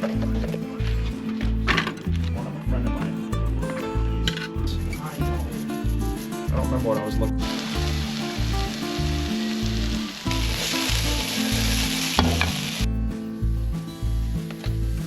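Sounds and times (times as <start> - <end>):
bass beat music: 0.0 - 15.0
steaks sizzling on a grill: 7.4 - 15.0.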